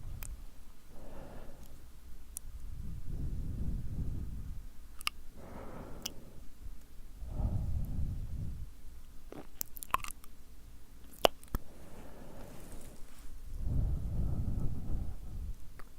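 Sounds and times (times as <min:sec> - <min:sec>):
lip smacks: 0:05.0 - 0:05.2, 0:06.0 - 0:06.2, 0:09.3 - 0:10.4, 0:11.0 - 0:11.7
tongue clicks: 0:05.0 - 0:05.2, 0:06.0 - 0:06.2, 0:09.3 - 0:10.4, 0:11.0 - 0:11.6
breath blown into microphone: 0:05.4 - 0:06.5, 0:07.2 - 0:08.7, 0:11.6 - 0:15.6.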